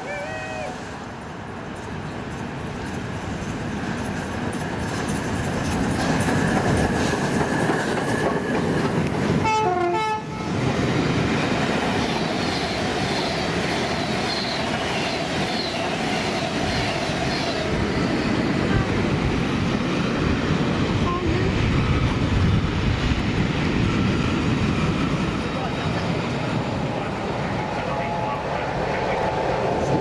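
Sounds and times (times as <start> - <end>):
train rumbling: 0.0 - 30.0
train horn blast: 9.4 - 10.6.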